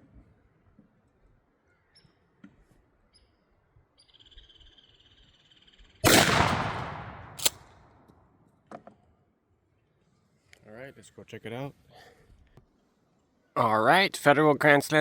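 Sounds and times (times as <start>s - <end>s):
shotgun shot: 6.0s - 7.7s
sharp click: 7.1s - 7.7s.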